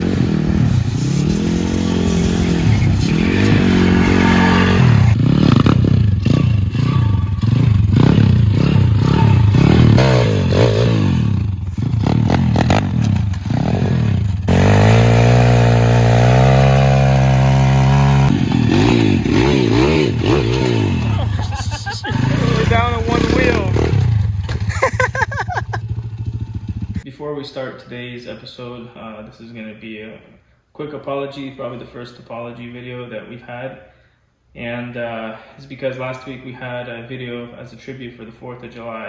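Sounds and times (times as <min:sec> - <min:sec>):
small motorbike engine revving: 0:00.0 - 0:27.0.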